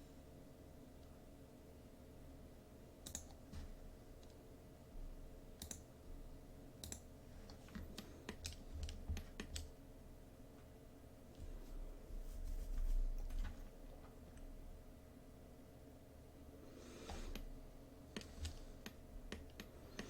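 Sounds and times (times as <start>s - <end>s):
low steady hum: 0.0s - 20.0s
mouse and keyboard clicking: 3.0s - 3.4s, 5.6s - 5.8s, 6.8s - 9.7s, 18.1s - 20.0s.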